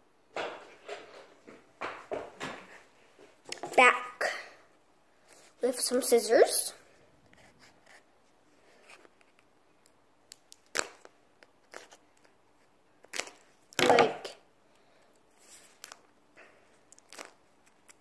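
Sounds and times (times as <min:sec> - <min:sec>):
scissors cracking hard plastic: 0:16.9 - 0:18.0.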